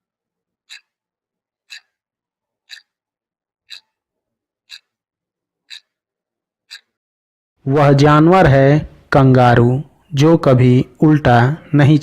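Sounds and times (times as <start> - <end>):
clock ticking: 0.6 - 2.0, 2.6 - 3.0, 3.7 - 4.0, 4.7 - 5.0, 5.6 - 6.0, 6.7 - 7.0.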